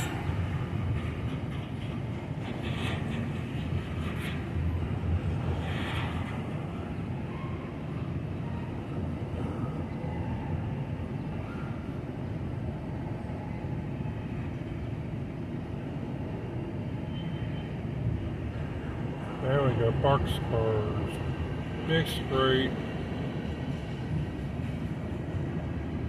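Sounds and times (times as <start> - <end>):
train wheels rumbling on rails: 0.0 - 9.9, 14.3 - 26.0
faint high wheel squeals: 17.0 - 17.8.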